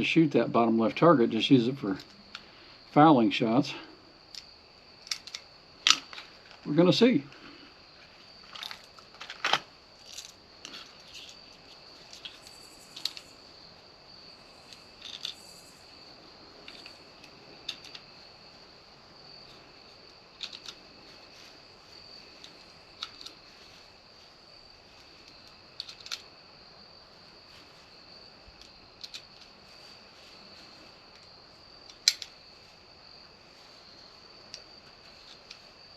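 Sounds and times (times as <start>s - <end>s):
sharp clicks and cracks: 4.3s - 6.7s, 16.6s - 18.1s, 20.3s - 20.8s, 22.4s - 23.4s, 25.2s - 26.3s, 28.6s - 29.5s, 31.9s - 32.4s.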